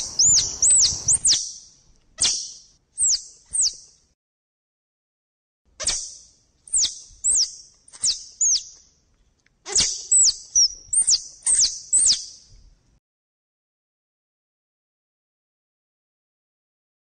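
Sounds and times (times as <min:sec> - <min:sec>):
animal chirping: 0:00.0 - 0:03.9, 0:05.8 - 0:08.8, 0:09.7 - 0:12.4.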